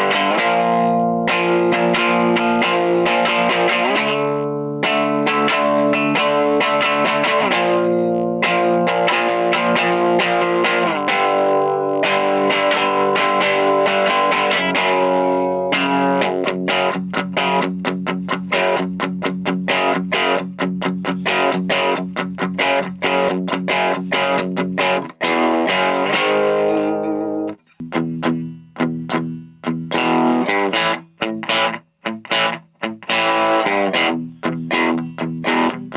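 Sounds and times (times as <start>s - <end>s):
crunchy electric guitar: 0.0s - 35.9s.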